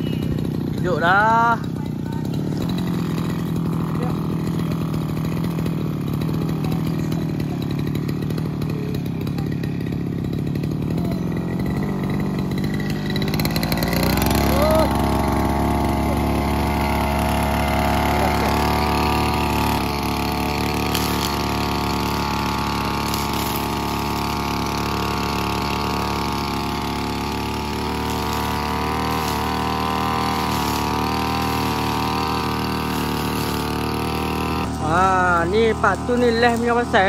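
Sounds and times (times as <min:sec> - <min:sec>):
brush cutter engine running: 0:00.0 - 0:37.0.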